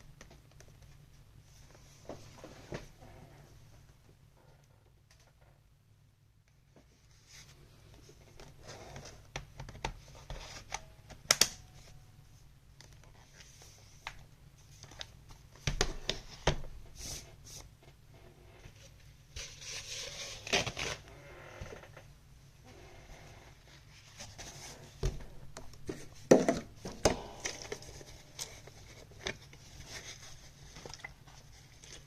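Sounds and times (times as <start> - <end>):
crinkling and scratching: 6.7 - 12.0, 12.8 - 32.0.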